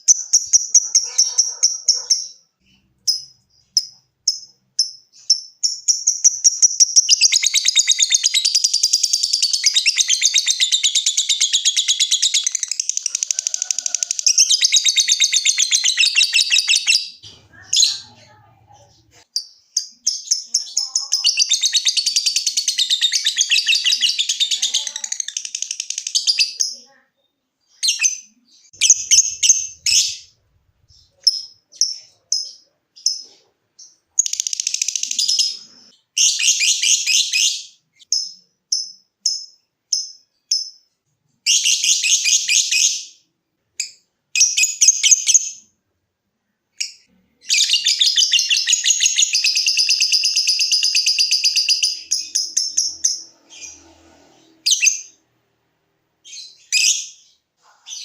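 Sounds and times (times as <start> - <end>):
bird chirping: 0.0 - 45.8, 46.4 - 58.0.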